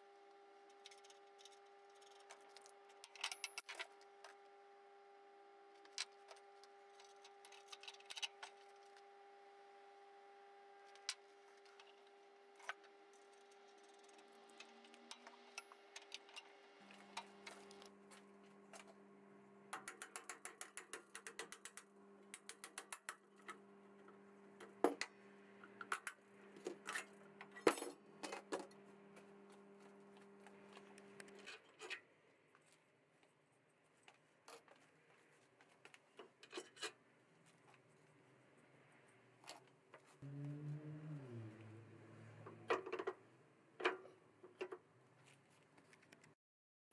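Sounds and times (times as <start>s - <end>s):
faint steady hum: 0.0s - 20.5s
lower hum: 40.2s - 42.8s.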